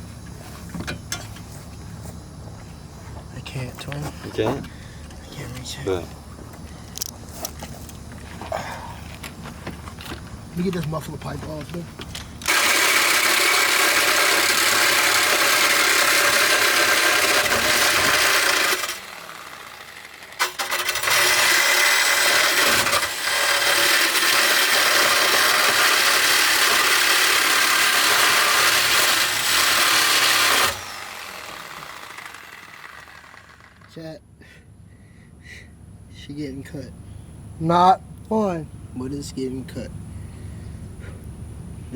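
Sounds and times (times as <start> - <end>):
power saw cutting steel pipe: 12.4 - 34.0.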